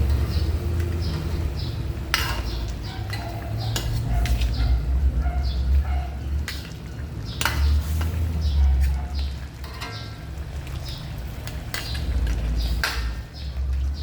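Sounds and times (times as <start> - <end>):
utensil scraping a pan: 7.4 - 9.0.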